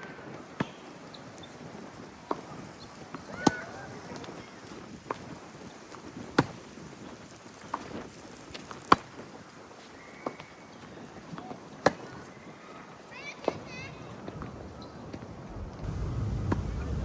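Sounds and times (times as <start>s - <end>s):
tennis ball bouncing: 0.6s - 0.9s, 3.1s - 3.7s, 6.4s - 6.6s, 8.9s - 9.2s, 11.3s - 12.3s
shoe squeak: 9.7s - 15.3s.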